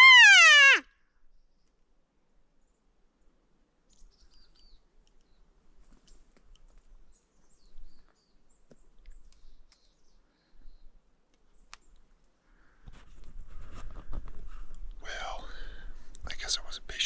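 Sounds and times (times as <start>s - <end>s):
small birds chirping: 3.8s - 12.2s.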